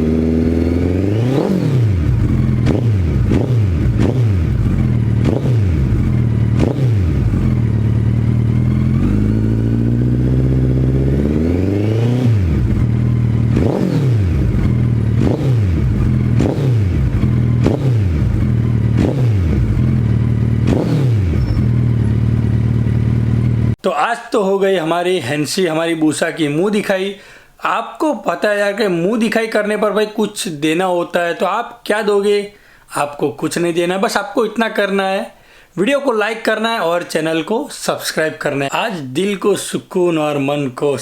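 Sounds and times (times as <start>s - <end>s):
motorcycle engine revving: 0.0s - 23.8s.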